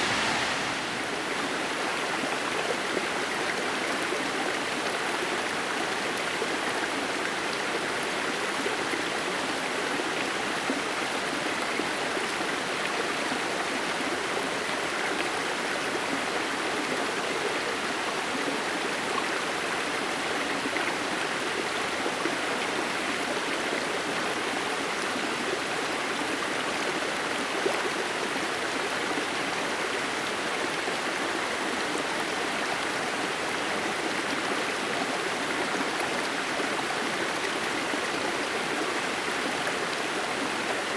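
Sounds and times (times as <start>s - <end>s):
waterfall splashing hiss: 0.0s - 2.1s.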